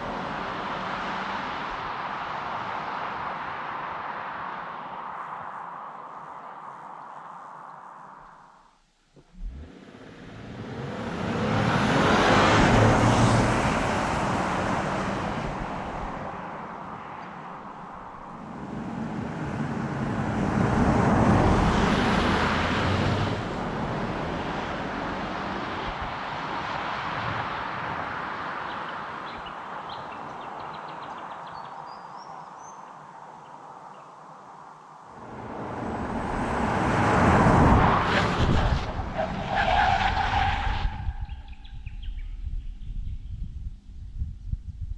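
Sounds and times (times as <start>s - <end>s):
car engine driven hard: 0.0s - 4.9s, 9.2s - 29.2s, 35.2s - 41.5s.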